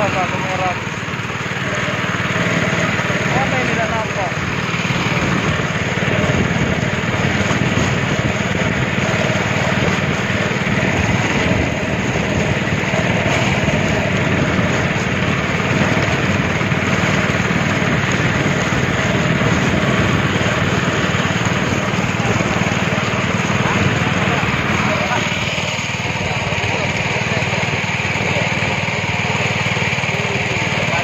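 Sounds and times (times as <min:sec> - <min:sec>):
speedboat engine running: 0:00.0 - 0:31.0
rush of wind and water: 0:04.4 - 0:26.7.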